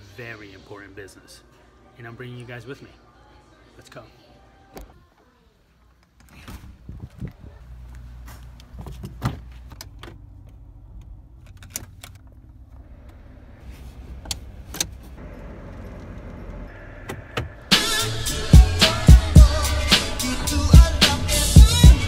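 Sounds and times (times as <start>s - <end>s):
car engine idling: 7.6s - 22.0s
clicks and knocks from controls: 14.2s - 15.2s
hip-hop music with beat: 17.2s - 22.0s.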